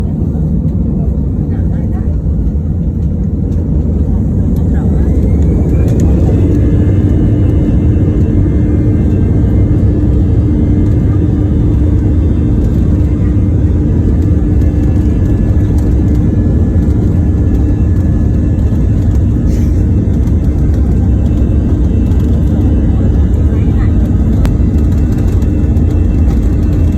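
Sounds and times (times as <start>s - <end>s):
airplane engines roaring: 0.0s - 26.9s
steady hum: 0.0s - 26.9s.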